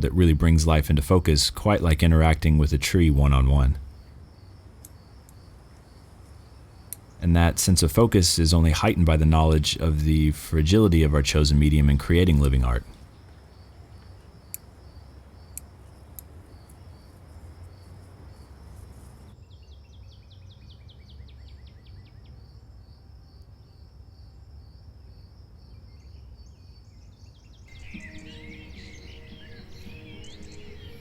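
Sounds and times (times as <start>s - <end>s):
crickets trilling: 0.2s - 9.6s, 12.6s - 19.4s, 27.7s - 31.0s.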